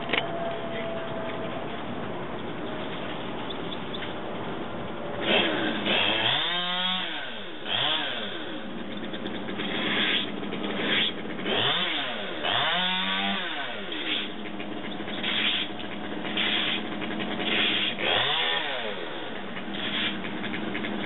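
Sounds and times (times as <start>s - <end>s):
chainsaw revving: 5.2s - 8.8s, 9.6s - 14.4s, 15.2s - 21.0s.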